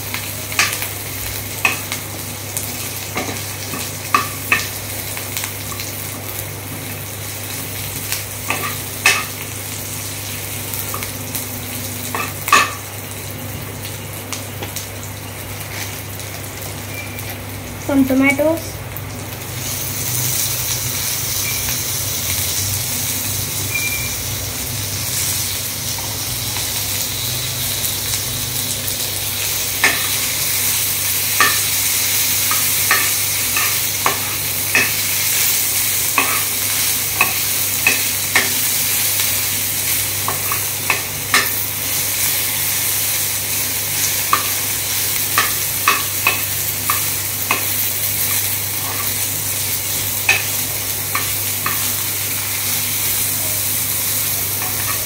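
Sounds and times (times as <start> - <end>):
vegetables sizzling in hot oil: 0.0 - 55.0
steel spoon clinking against pan: 36.2 - 38.6, 54.6 - 55.0.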